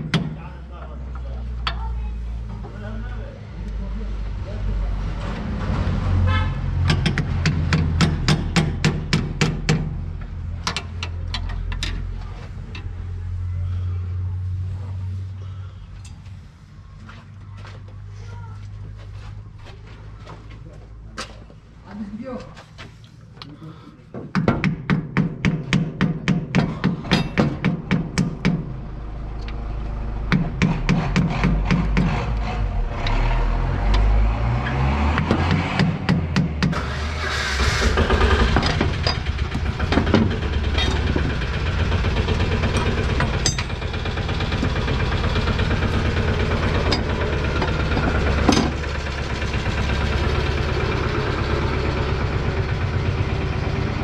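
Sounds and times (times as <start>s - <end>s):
hammer striking metal: 24.4s - 28.6s, 42.5s - 44.0s
low hum: 36.7s - 54.0s.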